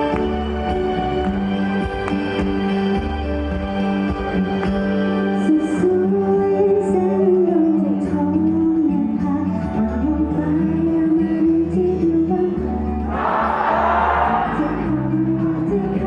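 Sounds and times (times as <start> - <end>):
woman singing pop ballad: 5.4 - 13.0, 14.4 - 16.0.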